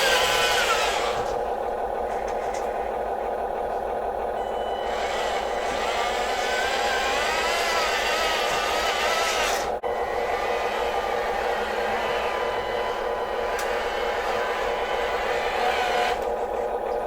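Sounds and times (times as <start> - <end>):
small electric motors whining: 0.0 - 1.4, 4.4 - 16.7
higher wavering motor whine: 0.0 - 2.0, 4.3 - 17.0.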